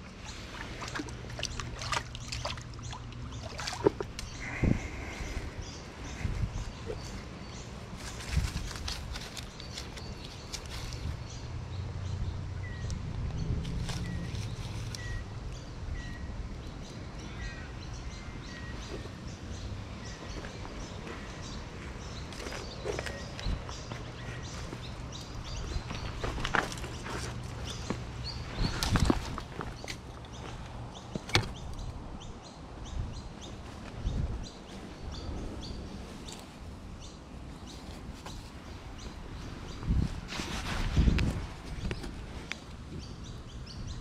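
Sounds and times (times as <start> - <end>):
birds chirping and whistling: 0.3 - 8.8, 12.0 - 36.4.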